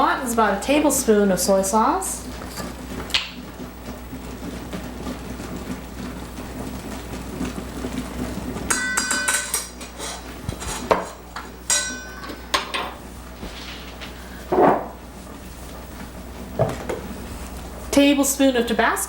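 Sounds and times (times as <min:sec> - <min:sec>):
dishes clinking: 0:02.4 - 0:02.7, 0:08.7 - 0:15.0.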